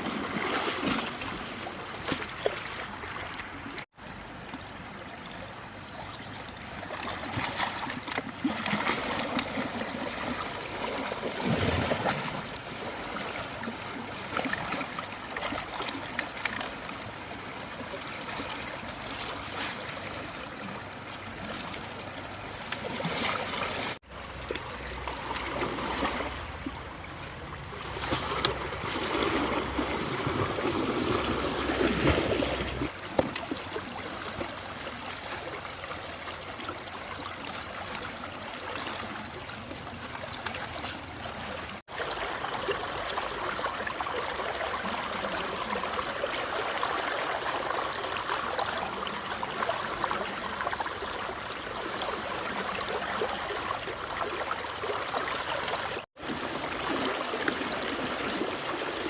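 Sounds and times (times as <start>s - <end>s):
floodwater trickling: 0.0s - 59.0s
water splashes: 0.0s - 59.0s.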